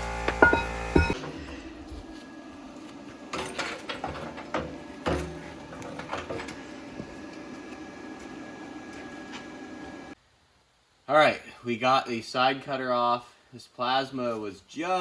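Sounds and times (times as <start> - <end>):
metallic knocks and clanks: 0.1 - 1.3.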